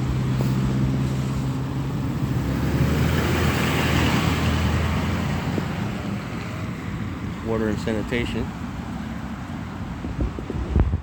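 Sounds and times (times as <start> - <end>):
low engine hum: 0.0 - 11.0
tyre hiss on wet road: 0.3 - 1.8.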